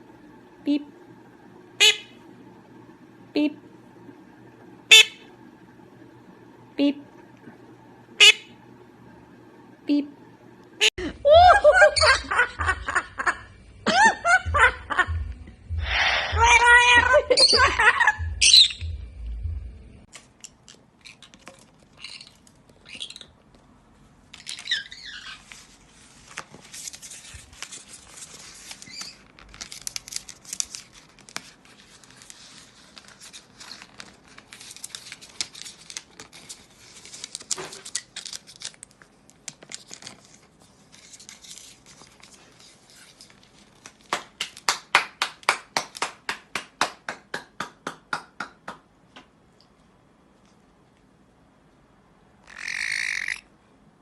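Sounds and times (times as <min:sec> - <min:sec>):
parrot call: 0:01.8 - 0:02.2, 0:04.9 - 0:05.3, 0:08.2 - 0:08.6, 0:15.8 - 0:18.9, 0:52.4 - 0:53.5
paper crinkling and tearing: 0:25.4 - 0:44.1.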